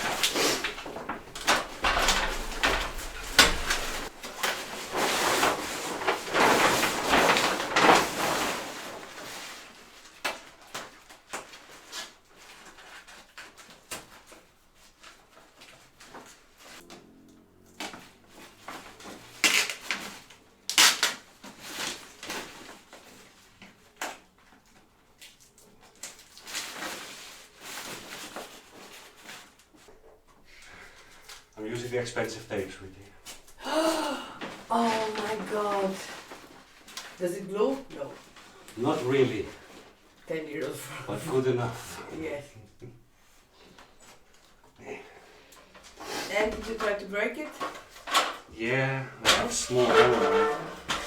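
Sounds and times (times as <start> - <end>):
handling knocks and scrapes: 0.0 - 12.7, 49.2 - 51.0
duct tape ripping off roll: 19.2 - 22.0.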